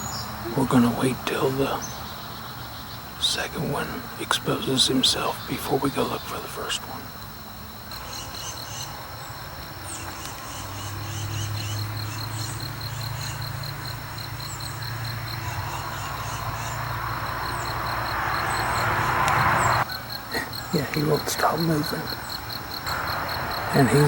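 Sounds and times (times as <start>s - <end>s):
insects chirping in trills: 0.0s - 24.0s
rushing noise: 15.2s - 24.0s.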